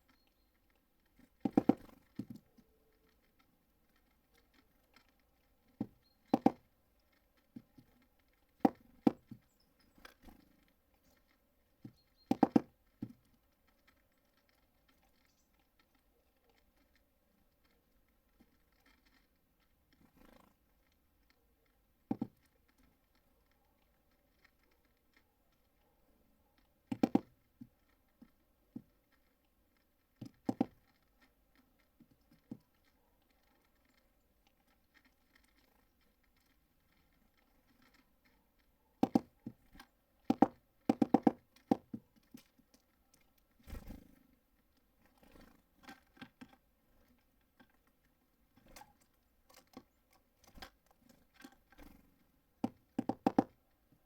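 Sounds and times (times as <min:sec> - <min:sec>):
beaks tapping on bird feeder: 0:01.2 - 0:03.2, 0:05.7 - 0:11.2, 0:11.8 - 0:13.4, 0:22.0 - 0:22.9, 0:26.8 - 0:28.9, 0:30.2 - 0:30.9, 0:39.0 - 0:44.2, 0:48.5 - 0:53.6.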